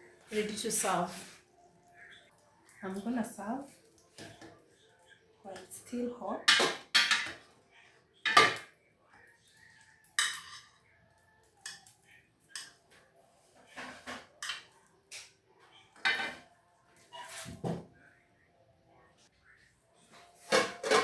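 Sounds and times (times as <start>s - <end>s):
dishes clattering: 6.4s - 7.5s, 8.2s - 8.7s, 10.2s - 10.9s, 13.7s - 15.3s, 16.0s - 16.5s, 20.4s - 21.0s
dishes and utensils clinking: 6.4s - 7.6s, 8.2s - 8.8s, 9.5s - 13.0s, 13.6s - 17.8s, 20.0s - 21.0s.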